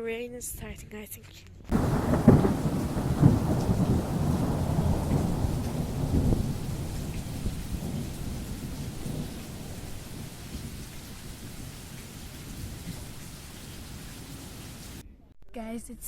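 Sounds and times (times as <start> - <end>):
rain falling: 1.7 - 15.0
thunder rumbling: 1.7 - 15.0.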